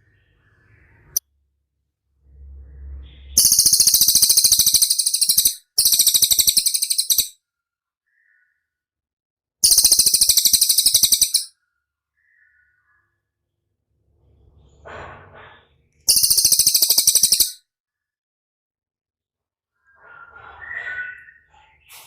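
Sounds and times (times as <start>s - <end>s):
songbird rapid trill: 3.4s - 7.3s, 9.6s - 11.5s, 16.1s - 17.6s.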